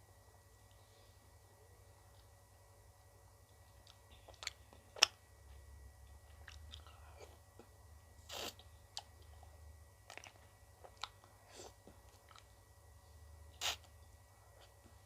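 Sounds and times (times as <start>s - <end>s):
person chewing ice cream: 3.5s - 5.2s, 6.0s - 12.6s
mouth clicks: 13.6s - 13.9s.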